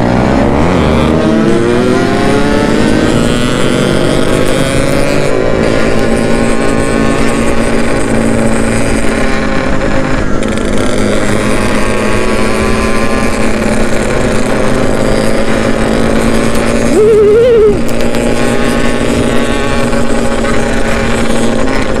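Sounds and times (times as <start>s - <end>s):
two-stroke motorcycle engine: 0.0s - 22.0s
wind and road noise: 0.0s - 22.0s
brief wavering tone: 16.9s - 17.8s.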